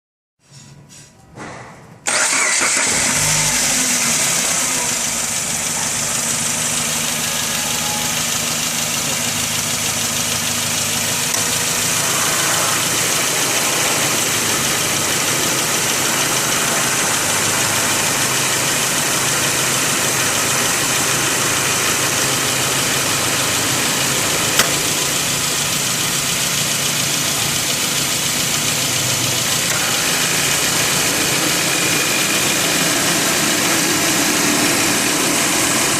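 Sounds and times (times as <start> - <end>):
car engine idling: 2.1 - 35.9
sharp click: 24.6 - 24.8.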